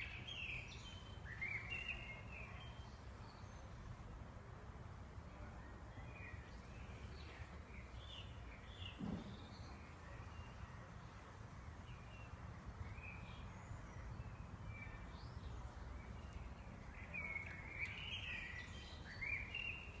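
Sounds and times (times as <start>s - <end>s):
bird song: 0.0s - 4.2s, 5.3s - 20.0s
bird chirps: 12.9s - 20.0s.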